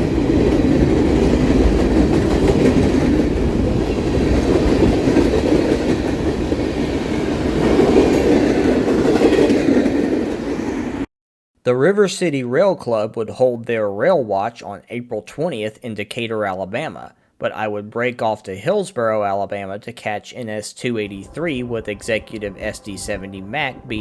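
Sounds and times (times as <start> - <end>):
freight train wheels rumbling: 0.0 - 11.0, 21.0 - 24.0.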